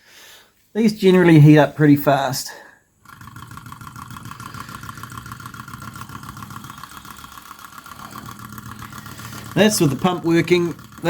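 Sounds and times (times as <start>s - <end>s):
hot-air engine running: 3.0s - 11.0s
water pump working: 3.0s - 11.0s.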